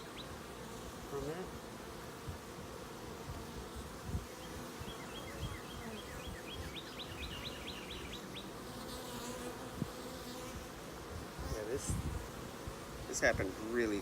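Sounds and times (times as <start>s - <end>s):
honey bees buzzing: 0.0s - 14.0s
bird chirping: 4.3s - 8.5s.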